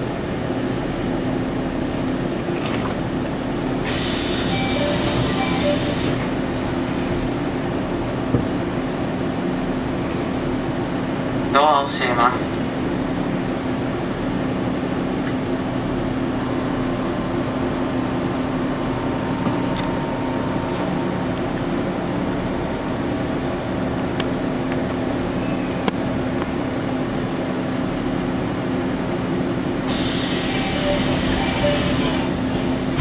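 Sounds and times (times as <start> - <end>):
train hum with low tones: 0.0 - 33.0
compressed air hiss: 29.9 - 32.0.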